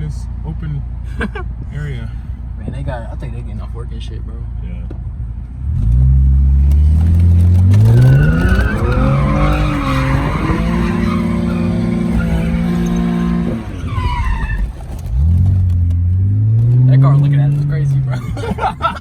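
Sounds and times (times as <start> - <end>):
car engine revving: 5.1 - 19.0
tyres squealing: 7.2 - 15.9.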